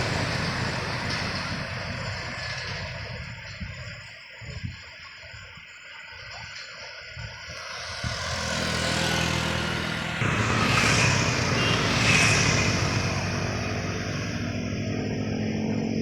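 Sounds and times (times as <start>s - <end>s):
truck hiss: 0.0s - 2.6s
truck engine labouring uphill: 0.0s - 4.8s, 6.8s - 16.0s.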